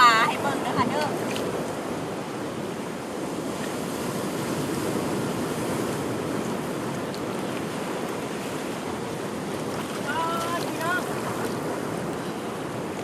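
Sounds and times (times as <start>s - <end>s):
sea surf washing onto shore: 0.0s - 13.0s.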